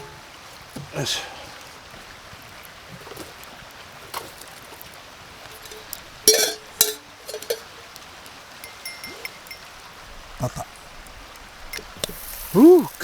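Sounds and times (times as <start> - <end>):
metal cookware clinking: 0.0 - 0.4, 5.5 - 7.9, 8.6 - 9.7.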